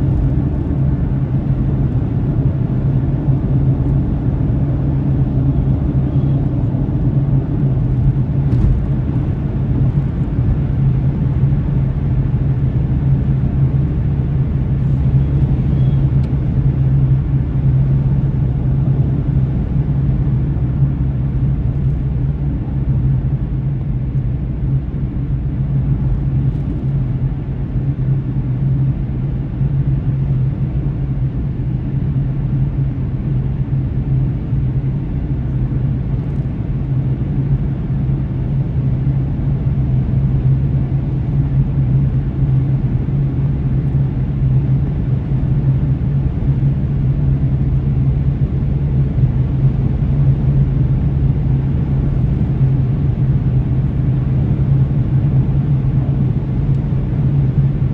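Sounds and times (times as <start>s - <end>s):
car engine and road rumble: 0.0s - 57.9s.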